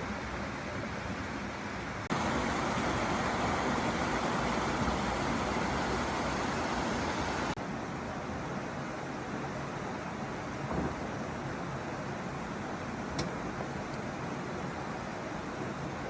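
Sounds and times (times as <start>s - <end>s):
stream water rushing: 2.1s - 7.6s.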